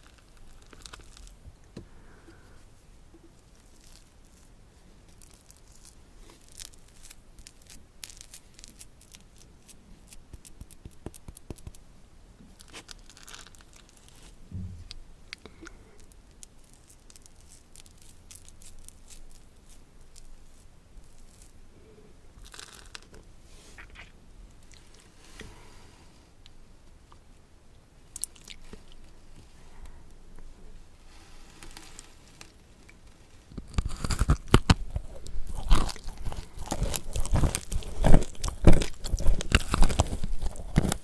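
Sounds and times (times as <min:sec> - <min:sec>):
food packaging crinkling and tearing: 0:00.0 - 0:01.4, 0:05.1 - 0:11.8, 0:12.6 - 0:14.4, 0:16.4 - 0:20.3, 0:22.4 - 0:23.2, 0:31.4 - 0:41.0
soft low thump: 0:14.5 - 0:15.1.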